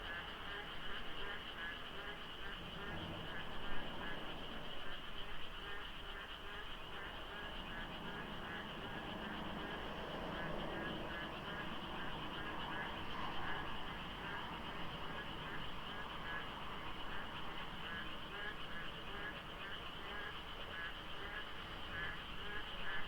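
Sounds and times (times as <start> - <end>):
frogs calling in chorus: 5.6 - 23.0.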